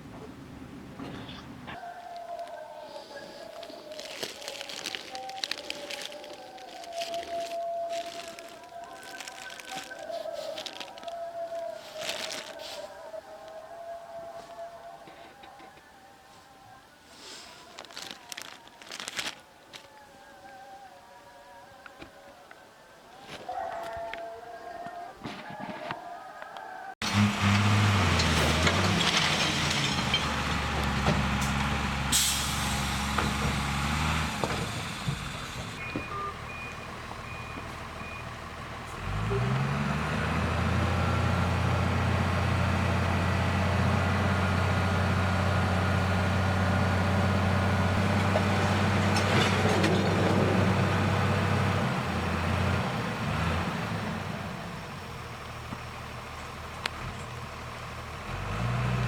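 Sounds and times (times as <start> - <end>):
diesel truck engine running: 27.0 - 59.0
air brake hiss: 32.1 - 33.1
reversing beeps: 35.8 - 38.4.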